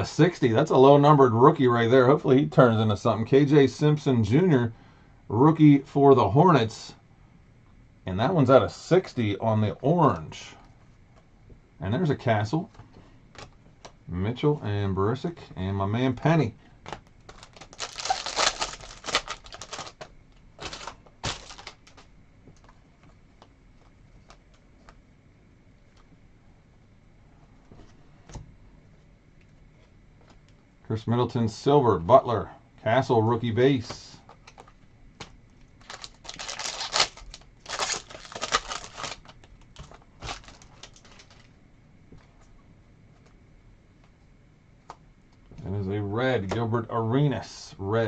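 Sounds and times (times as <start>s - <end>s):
foil wrapper crinkling: 16.9s - 22.1s, 35.6s - 41.6s.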